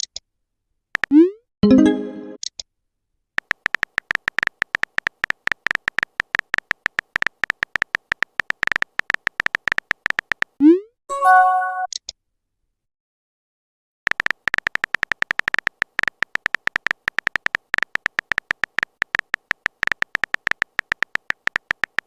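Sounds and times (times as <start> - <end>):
phone keyboard typing clicks: 1.0 - 1.2, 3.4 - 10.6, 14.1 - 22.0
notification chime with rising swoop: 1.6 - 2.4.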